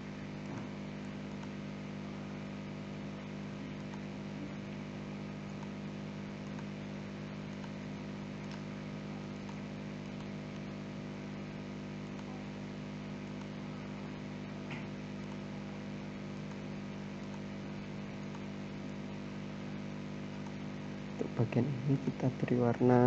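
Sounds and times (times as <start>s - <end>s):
steady electrical hum: 0.0s - 23.0s
faint clicks: 0.4s - 1.6s, 3.2s - 4.6s, 5.2s - 10.8s, 12.1s - 12.6s, 16.4s - 17.5s, 20.3s - 21.4s.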